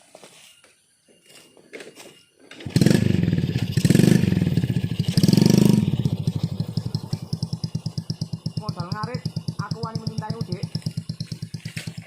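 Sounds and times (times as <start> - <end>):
motorcycle engine revving and idling: 2.6 - 12.0.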